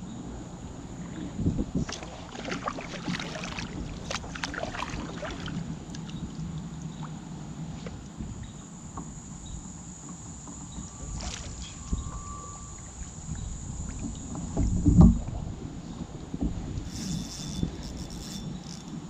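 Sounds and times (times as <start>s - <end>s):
wind and current rumble: 0.0s - 19.0s
water lapping against kayak hull: 1.0s - 19.0s
small splashes and knocks: 1.8s - 6.4s, 11.1s - 11.8s.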